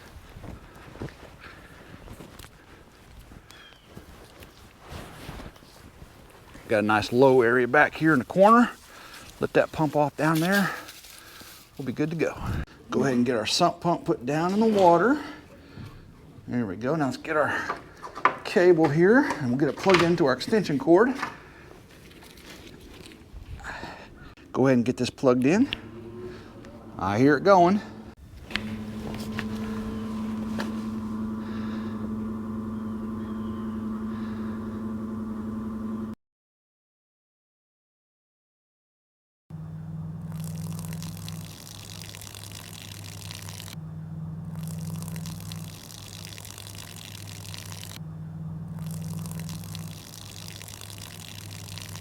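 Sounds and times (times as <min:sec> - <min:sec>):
sump pump humming: 0:25.4 - 0:36.2, 0:39.6 - 0:52.0
water pouring: 0:40.3 - 0:43.8, 0:44.6 - 0:48.0, 0:48.8 - 0:52.0.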